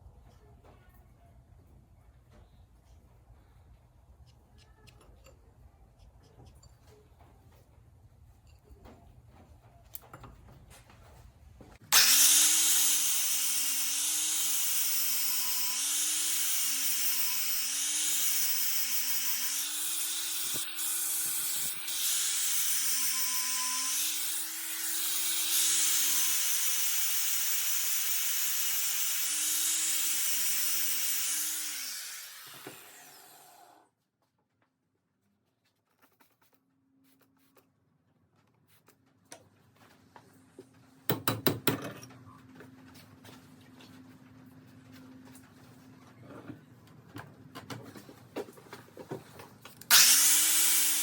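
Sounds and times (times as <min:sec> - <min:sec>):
angle grinder cutting steel: 0:11.9 - 0:33.8, 0:49.9 - 0:51.0.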